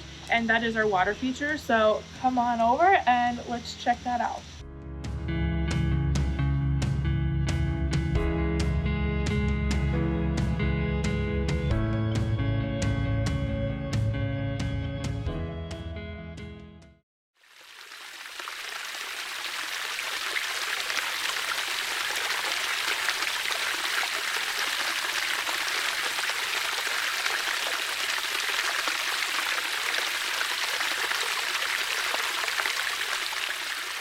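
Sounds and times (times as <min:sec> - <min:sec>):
water trickling in a water feature: 0:17.4 - 0:34.0.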